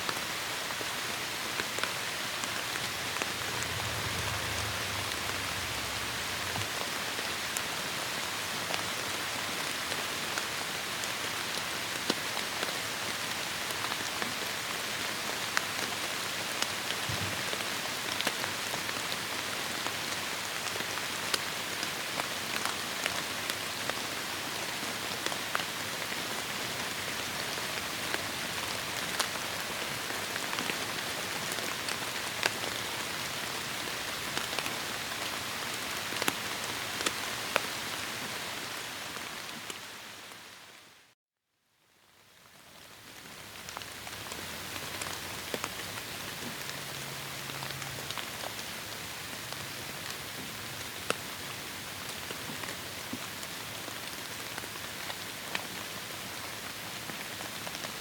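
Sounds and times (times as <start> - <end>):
heavy rain on foliage: 0.0 - 41.1, 41.9 - 58.0
low rumble: 2.5 - 7.6.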